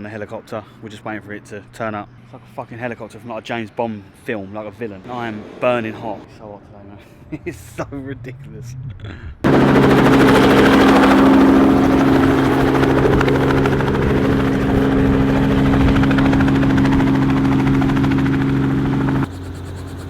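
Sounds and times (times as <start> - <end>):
helicopter engine and rotor drone: 9.4 - 20.0.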